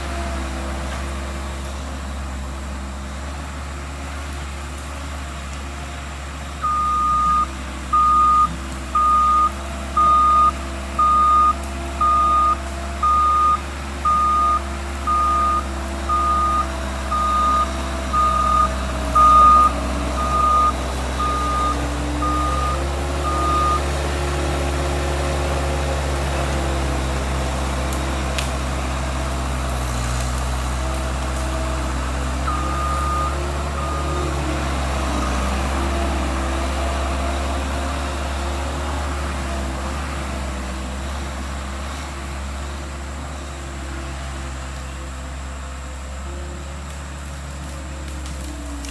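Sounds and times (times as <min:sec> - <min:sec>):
skid steer engine running: 0:00.0 - 0:48.9
reverse alarm beeping: 0:06.6 - 0:23.9, 0:32.4 - 0:34.3.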